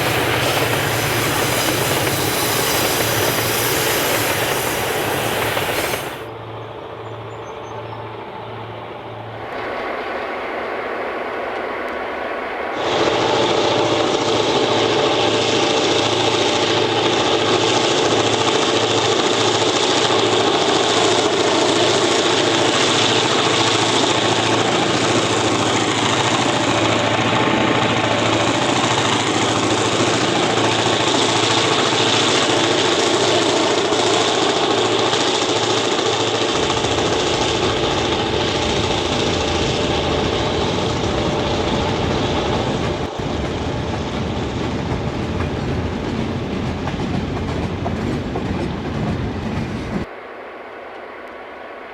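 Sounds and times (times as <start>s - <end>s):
diesel locomotive engine droning: 0.0s - 51.9s
deeper rumble: 36.6s - 50.1s.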